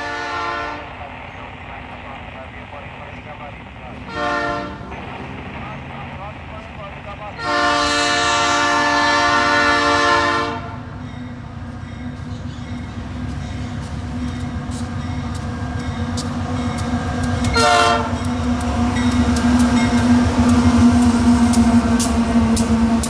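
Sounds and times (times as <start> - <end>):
locomotive air horn blasts: 0.0 - 0.8, 4.0 - 5.3, 7.4 - 10.9, 17.5 - 18.2
diesel locomotive rumble: 0.0 - 23.0.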